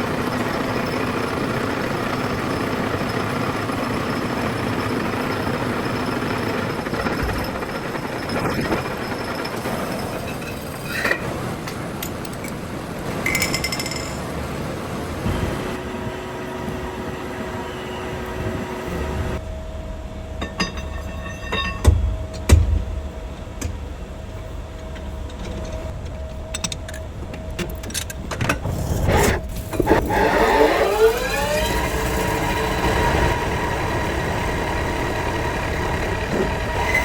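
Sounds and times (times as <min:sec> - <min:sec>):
workshop machinery running: 0:00.0 - 0:37.0
metallic clicks and clanks: 0:24.8 - 0:28.7.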